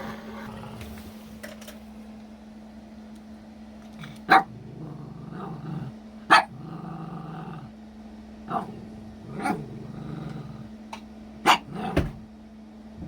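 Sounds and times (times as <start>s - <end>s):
dog growling: 0.2s - 1.2s, 3.9s - 7.8s, 8.5s - 10.8s, 11.5s - 12.2s
dog barking: 4.3s - 4.6s, 6.3s - 6.6s, 11.4s - 12.1s.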